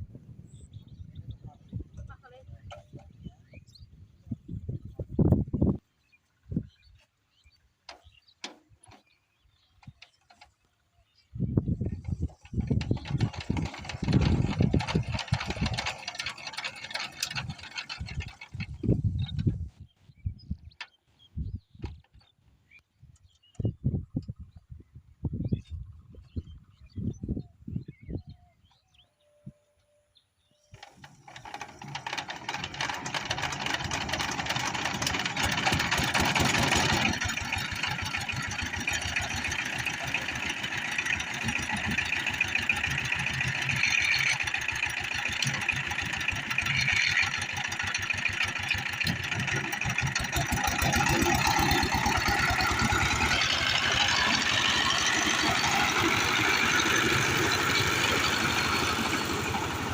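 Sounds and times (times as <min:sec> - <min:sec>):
diesel engine starting and chugging: 0:08.0 - 0:19.8, 0:30.7 - 0:59.9.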